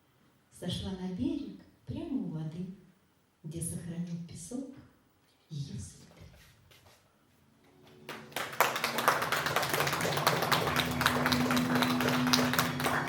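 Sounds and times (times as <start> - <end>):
music: 7.6 - 13.0
audience applause: 7.9 - 13.0.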